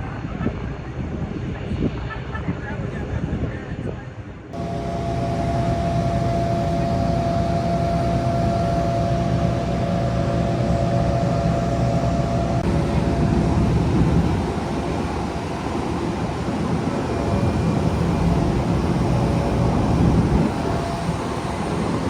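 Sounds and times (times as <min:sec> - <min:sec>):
aircraft engine rushing: 0:00.0 - 0:22.0
engine whine: 0:04.4 - 0:22.0.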